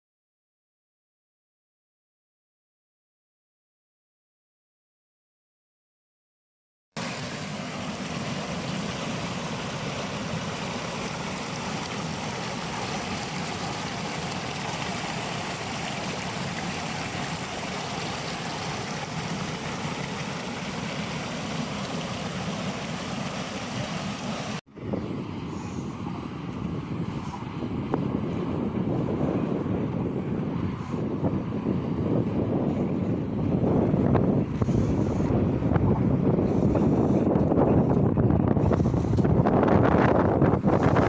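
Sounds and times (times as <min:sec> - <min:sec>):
stream water flowing: 0:07.0 - 0:28.9.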